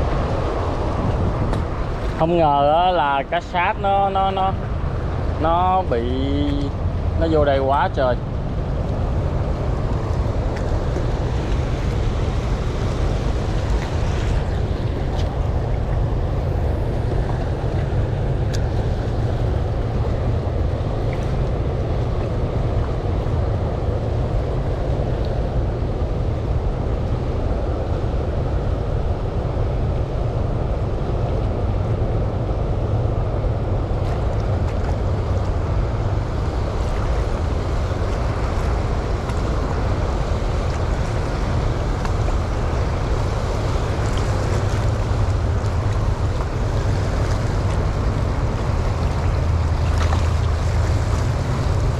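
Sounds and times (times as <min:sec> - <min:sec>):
rushing water and waves: 0:00.0 - 0:51.9
wind buffeting microphone: 0:00.0 - 0:51.9.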